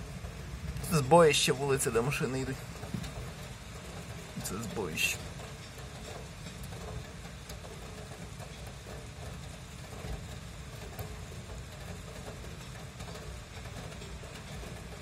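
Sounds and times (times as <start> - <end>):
heavy rain hissing: 0.0 - 7.2
distant street traffic hum: 0.0 - 15.0.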